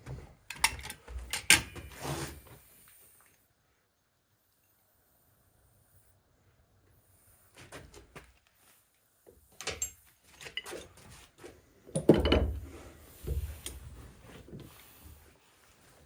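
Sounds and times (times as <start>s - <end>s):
metal parts clinking and knocking: 0.5s - 1.9s, 9.6s - 10.9s.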